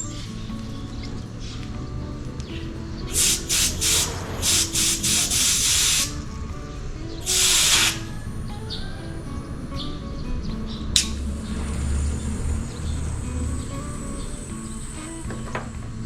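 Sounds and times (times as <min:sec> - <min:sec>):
refrigerant gas hissing: 0:00.0 - 0:08.6
background music: 0:00.0 - 0:16.0.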